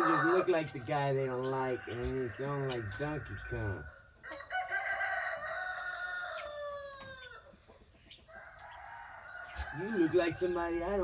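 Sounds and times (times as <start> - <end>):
rooster crowing: 0.0 - 0.4, 2.4 - 7.3.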